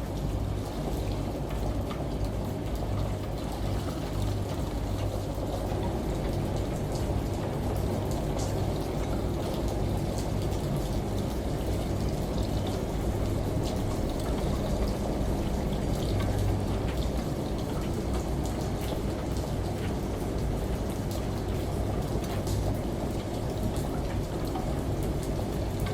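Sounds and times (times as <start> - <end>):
steady rain: 0.0 - 25.9
low uneven hum: 2.4 - 9.5.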